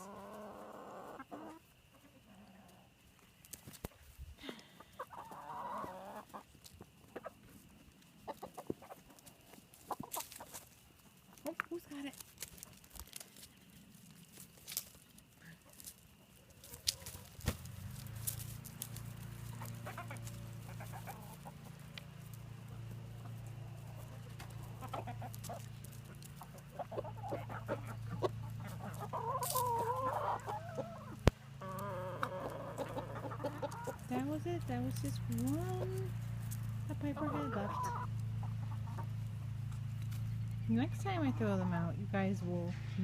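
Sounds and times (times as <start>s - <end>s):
hens squawking: 0.0s - 2.7s, 4.8s - 7.4s, 8.2s - 10.6s, 19.1s - 41.9s
hens clucking: 0.0s - 42.7s.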